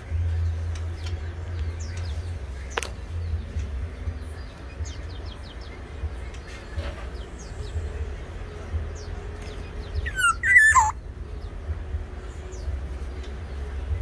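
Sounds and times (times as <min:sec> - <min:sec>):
high bird chirps: 0:09.0 - 0:11.0.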